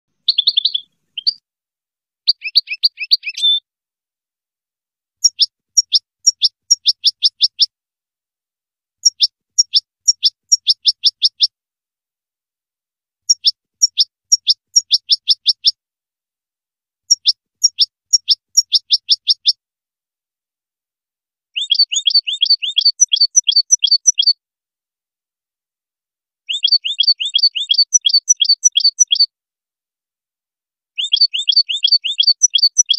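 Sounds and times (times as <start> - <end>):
bird chirping in bursts: 0.2 - 1.4, 2.3 - 3.6, 5.2 - 7.7, 9.0 - 11.5, 13.3 - 15.7, 17.1 - 19.6, 21.6 - 24.4, 26.5 - 29.3, 31.0 - 32.9.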